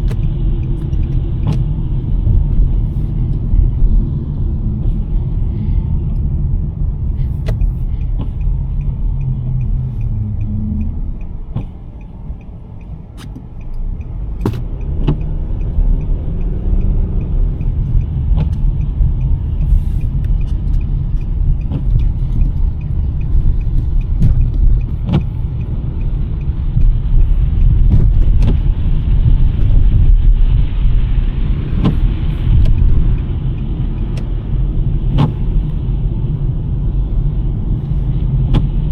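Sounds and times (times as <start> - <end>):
sharp knocks and clicks: 0.0 - 2.7, 7.4 - 8.4, 9.6 - 15.8, 23.6 - 25.3
car tyres and engine rumbling: 0.0 - 38.9.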